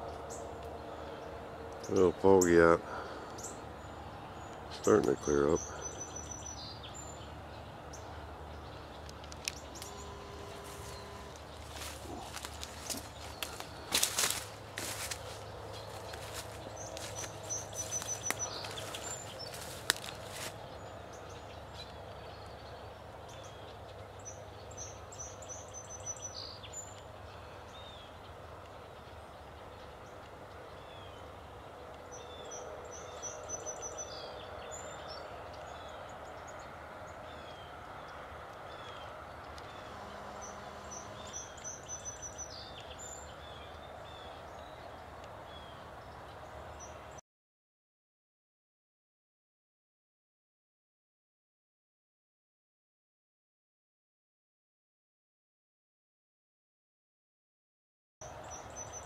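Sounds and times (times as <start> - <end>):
low background hum: 0.0 - 47.2
songbirds singing: 0.0 - 47.2, 58.2 - 59.0.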